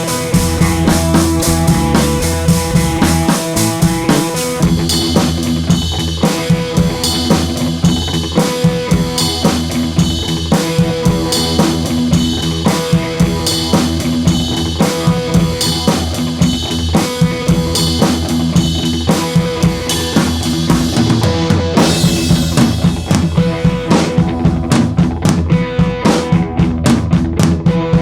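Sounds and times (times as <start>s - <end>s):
sustained instrumental notes: 0.0s - 4.8s
drum beat: 0.0s - 6.0s, 21.8s - 27.5s.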